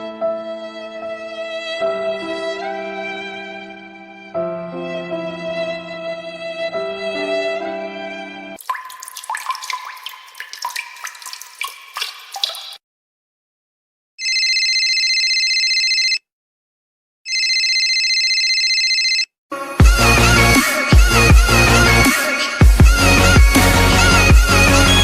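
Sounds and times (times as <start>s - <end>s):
water drops plinking: 8.6s - 12.8s
telephone ringing: 14.2s - 16.2s, 17.3s - 19.3s.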